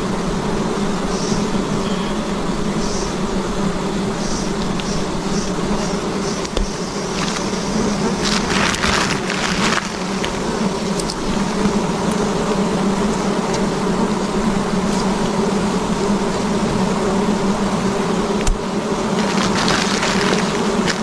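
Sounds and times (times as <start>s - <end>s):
honeybees buzzing: 0.0s - 21.0s
rough rustling noise: 4.6s - 17.0s, 17.8s - 21.0s.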